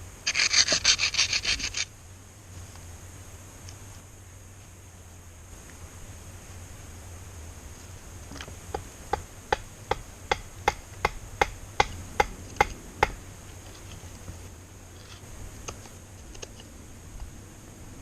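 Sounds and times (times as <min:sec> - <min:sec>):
chopping strikes on wood: 0:08.7 - 0:13.2.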